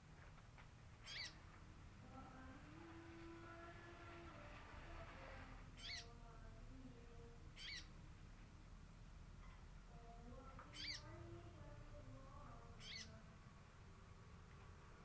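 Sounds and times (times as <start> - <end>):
background noise: 0.0 - 15.0
bird calling: 1.0 - 1.4, 10.8 - 11.1, 12.8 - 13.2.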